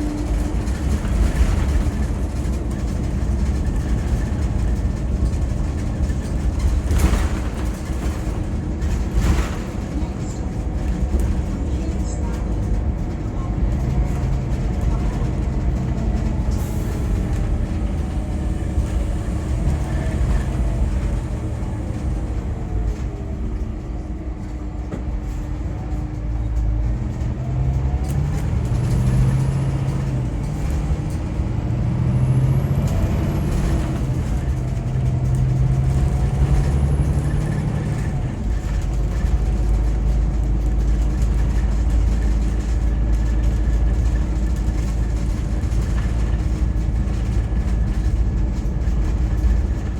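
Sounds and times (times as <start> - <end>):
coach engine drone: 0.0 - 49.9
road noise: 0.0 - 49.9.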